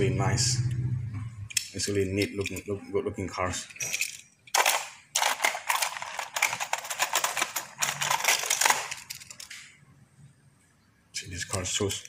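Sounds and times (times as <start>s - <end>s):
metal toy cars clinking: 1.5s - 2.8s, 3.5s - 9.6s.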